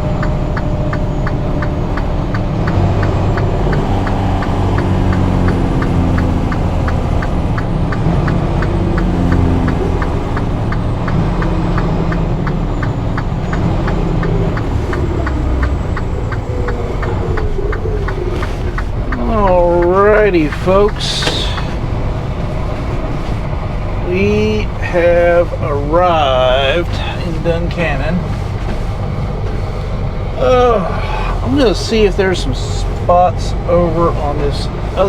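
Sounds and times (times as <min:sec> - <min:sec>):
rapid ticking: 0:00.0 - 0:35.0
truck diesel engine running: 0:00.0 - 0:35.0.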